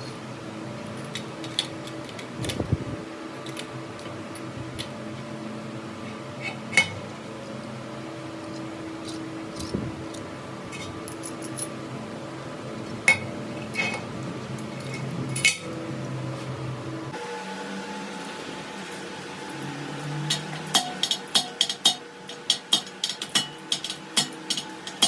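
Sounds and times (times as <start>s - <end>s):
low hum of workshop machinery: 0.0s - 25.0s
metal parts clinking: 0.8s - 2.7s, 9.0s - 11.8s, 14.6s - 15.8s, 20.3s - 25.0s.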